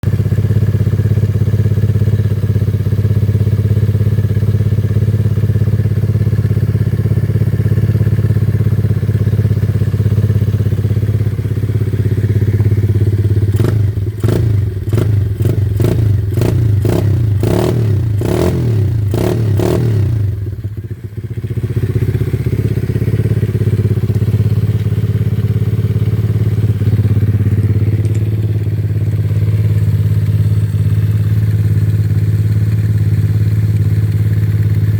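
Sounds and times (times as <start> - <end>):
motorcycle engine idling and blipping: 0.0 - 34.9.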